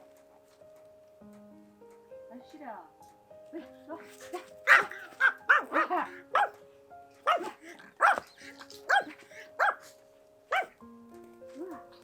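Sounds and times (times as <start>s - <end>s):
soft background music: 0.0s - 12.0s
dog barking: 4.3s - 6.6s, 7.2s - 8.3s, 8.9s - 9.9s, 10.5s - 10.8s.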